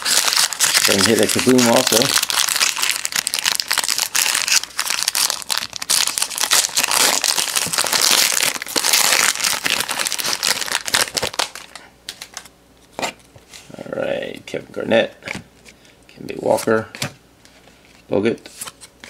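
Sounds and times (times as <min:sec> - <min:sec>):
wrapper crinkling and tearing: 0:00.0 - 0:12.4.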